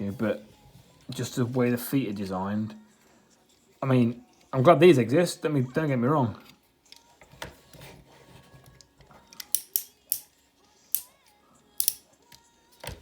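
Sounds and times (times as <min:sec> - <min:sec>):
plastic toy parts clicking: 0:09.3 - 0:10.3, 0:11.8 - 0:12.4.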